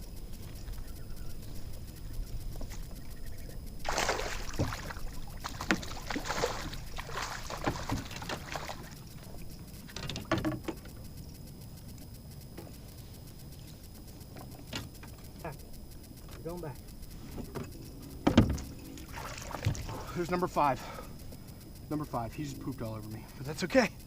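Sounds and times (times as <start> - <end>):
water splashing on kayak: 3.8 - 9.4, 18.4 - 20.2.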